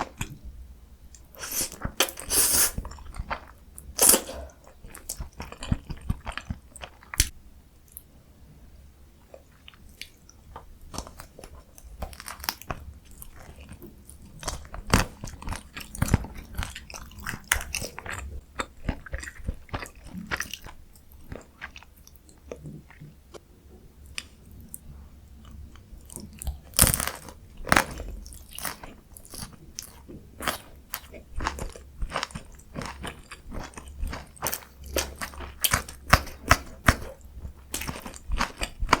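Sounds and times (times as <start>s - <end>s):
crunchy chewing and biting: 26.0s - 39.0s.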